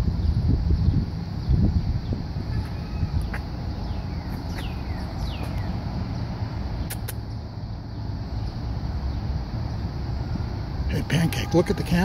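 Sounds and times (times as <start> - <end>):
steady low rumble: 0.0 - 11.2
birds whistling calls: 1.7 - 5.8
sharp clicks: 6.8 - 7.4.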